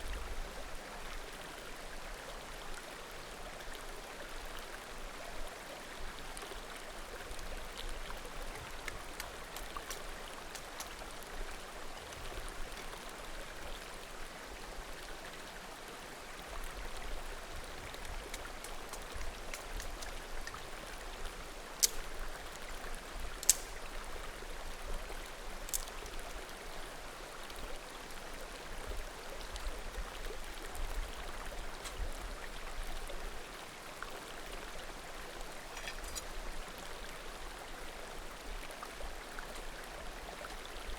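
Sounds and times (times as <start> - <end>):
bonfire crackling: 23.4 - 23.8
firewood popping: 23.4 - 23.8.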